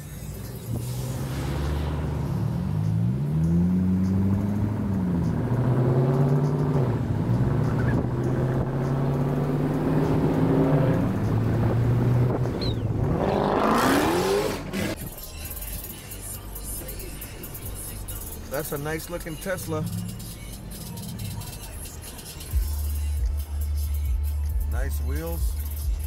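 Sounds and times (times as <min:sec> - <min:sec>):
car engine accelerating through gears: 0:00.1 - 0:15.1.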